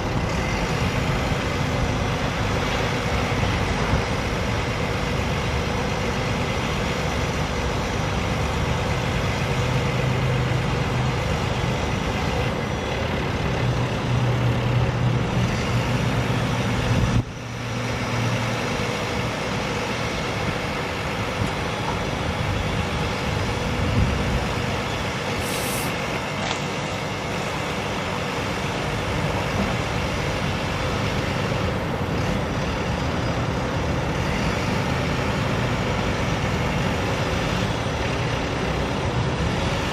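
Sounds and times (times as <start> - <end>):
diesel truck engine running: 0.0 - 39.9
brief high hiss: 25.4 - 26.0.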